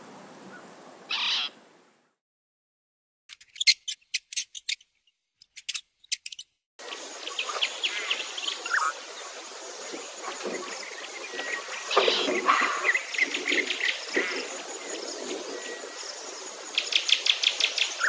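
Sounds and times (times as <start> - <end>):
bird sharp high chirps: 3.3 - 6.6
high insect whine: 6.8 - 18.0
wetland insect and bird chorus: 6.8 - 18.0.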